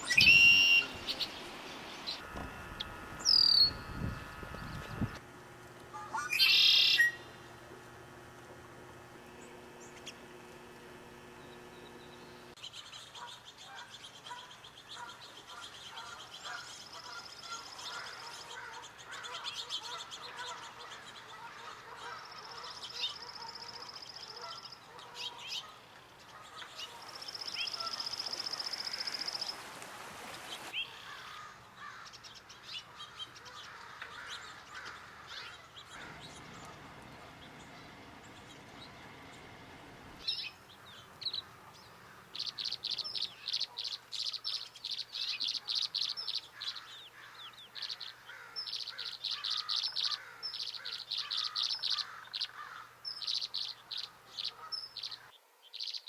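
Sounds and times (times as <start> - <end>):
birds singing and calling: 0.0 - 5.2, 6.0 - 7.4, 9.3 - 39.5, 40.2 - 56.0
high even bird trill: 6.0 - 7.4.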